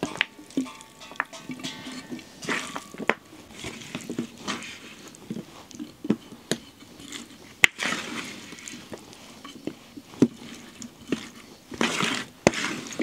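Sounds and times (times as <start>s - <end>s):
utensils and dishes knocking: 0.0s - 3.6s.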